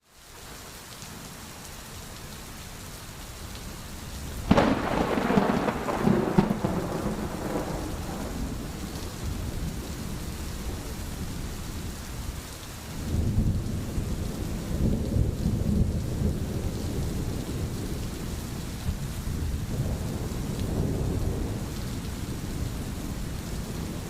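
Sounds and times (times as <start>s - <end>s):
steady rain: 0.0s - 24.0s
thunder crack and rumble: 4.4s - 11.9s, 13.1s - 24.0s.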